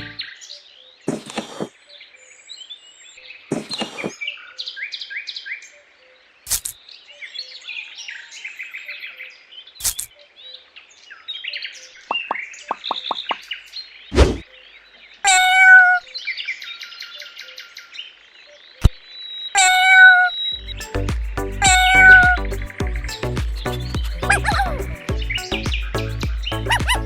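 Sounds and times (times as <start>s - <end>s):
small birds chirping: 0.0s - 27.0s
sharp knocks: 12.1s - 13.4s.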